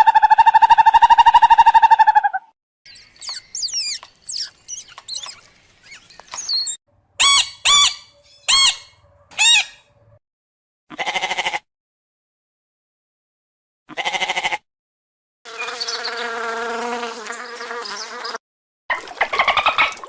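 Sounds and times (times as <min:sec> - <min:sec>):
bird chirps: 0:02.9 - 0:10.2, 0:15.5 - 0:16.2
bird squawks: 0:03.2 - 0:10.0.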